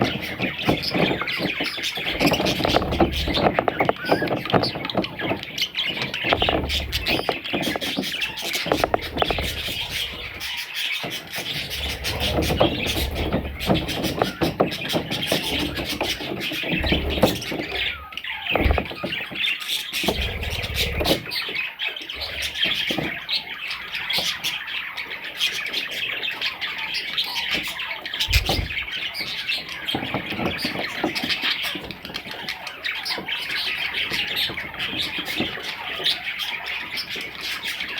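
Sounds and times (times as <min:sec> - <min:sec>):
baby budgies chirping and squawking: 0:00.0 - 0:37.9
low thumps: 0:08.7 - 0:10.4, 0:11.7 - 0:14.4.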